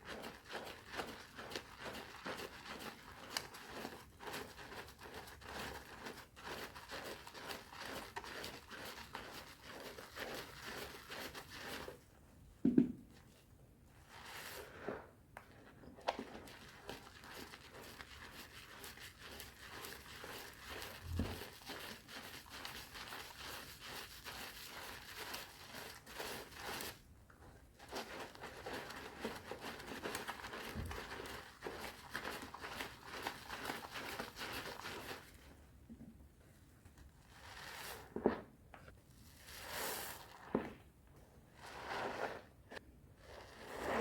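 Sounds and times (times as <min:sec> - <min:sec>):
soap lather crackling: 0:16.2 - 0:27.0, 0:27.9 - 0:35.4.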